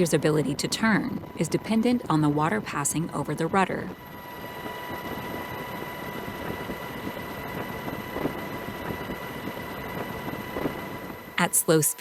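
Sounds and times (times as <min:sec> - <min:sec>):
engine drone with high whine: 0:00.0 - 0:12.0.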